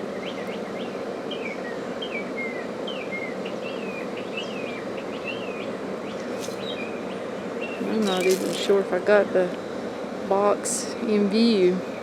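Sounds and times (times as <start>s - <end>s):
small bird calling: 0.0s - 8.8s
steady background hum: 0.0s - 12.0s.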